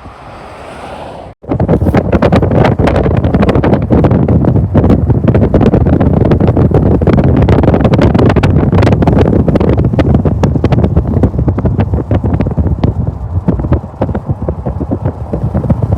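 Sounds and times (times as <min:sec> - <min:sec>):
wind on microphone: 0:00.0 - 0:15.9
train rumbling and clattering: 0:04.6 - 0:15.9.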